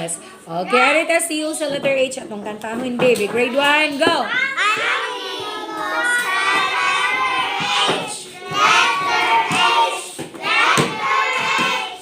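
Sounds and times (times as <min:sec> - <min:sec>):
children singing together: 0:04.7 - 0:12.0.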